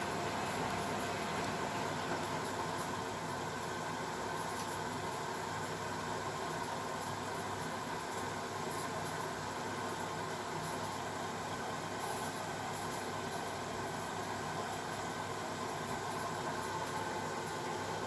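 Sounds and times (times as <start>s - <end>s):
washing machine humming: 0.0s - 5.6s, 9.5s - 18.0s.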